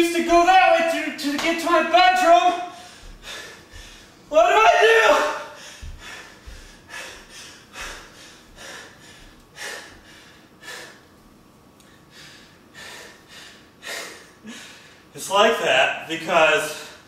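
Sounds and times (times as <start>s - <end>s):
man breathing noisily: 2.7s - 4.3s, 5.5s - 11.2s, 11.8s - 15.1s.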